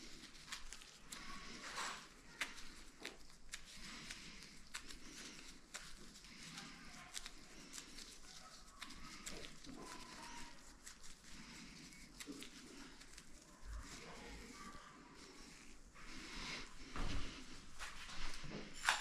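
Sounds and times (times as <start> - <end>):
rustling: 0.0 - 19.0.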